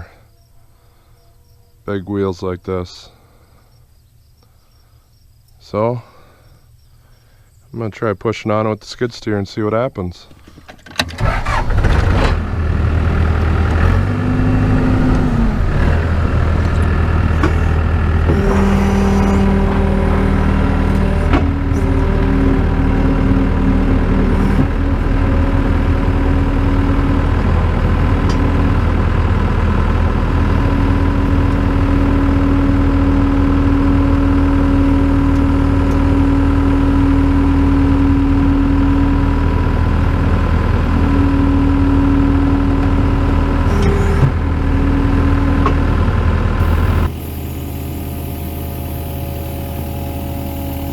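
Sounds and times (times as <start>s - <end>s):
skid steer engine running: 11.0s - 50.9s
hydraulic humming tone: 11.2s - 50.9s.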